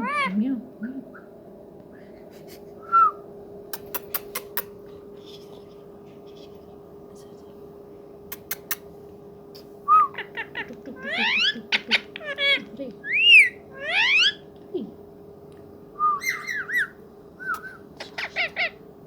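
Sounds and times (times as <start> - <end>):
parakeet whistling: 9.9 - 14.4, 16.0 - 18.8.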